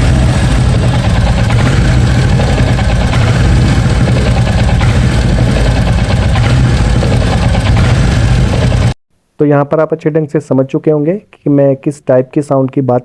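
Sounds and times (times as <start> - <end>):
motorcycle engine idling: 0.0 - 9.0.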